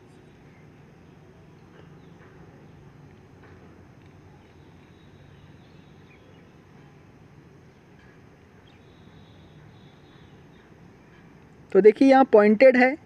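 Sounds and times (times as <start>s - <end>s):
faint bird chirps: 4.3s - 6.6s, 8.6s - 11.2s.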